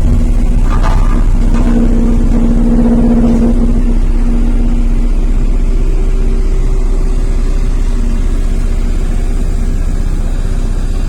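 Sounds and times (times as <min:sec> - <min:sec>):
diesel engine throbbing: 0:00.0 - 0:11.0
high-pitched whine: 0:00.6 - 0:07.5.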